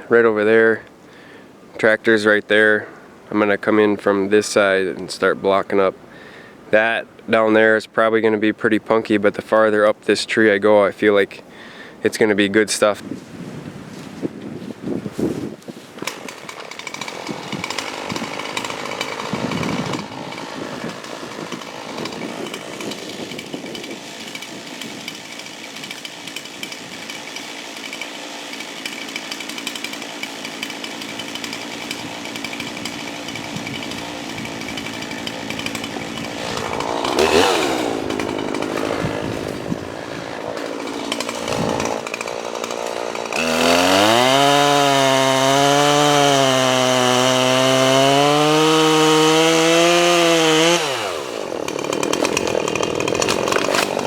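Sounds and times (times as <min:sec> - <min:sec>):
chainsaw cutting log: 0:15.9 - 0:54.0.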